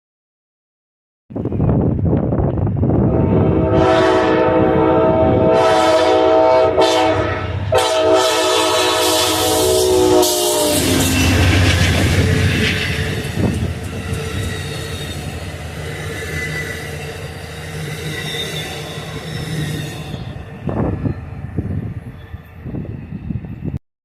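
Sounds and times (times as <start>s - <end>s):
train engine rumble: 1.3s - 23.8s
train horn blast: 3.0s - 13.2s
train wheels squealing: 9.0s - 23.8s.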